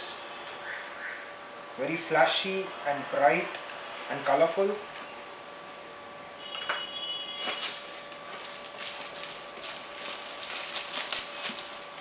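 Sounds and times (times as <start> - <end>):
faint steady hum: 0.0 - 12.0
foam parts and packaging rustling: 7.3 - 12.0.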